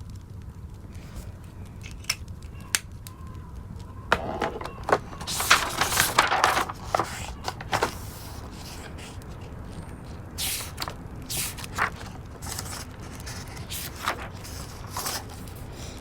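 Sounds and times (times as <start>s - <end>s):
fireplace crackling: 0.0s - 16.0s
rustling and clicking: 0.7s - 16.0s.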